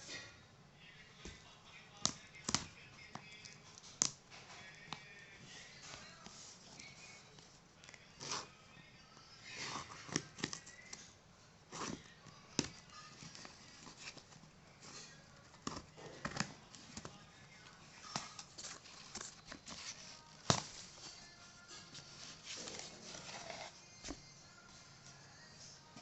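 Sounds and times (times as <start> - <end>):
soft rustling: 13.2 - 26.0.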